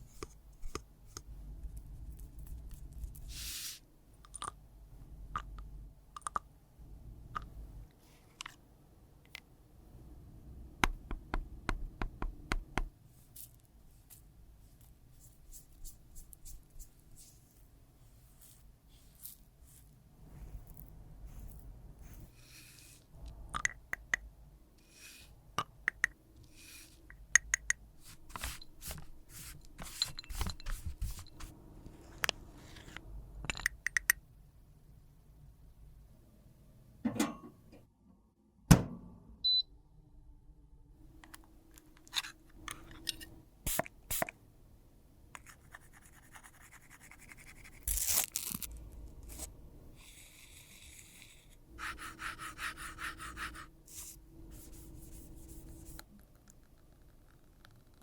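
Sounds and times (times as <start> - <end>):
makeup tools clicking and tapping: 27.1 - 27.8, 33.5 - 34.2
loud knock: 38.7 - 39.2.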